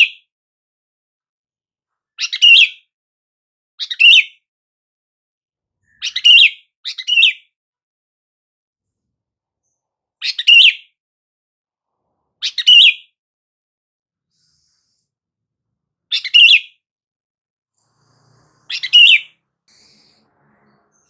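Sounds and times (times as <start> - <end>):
bulbul calling: 18.6 - 20.0.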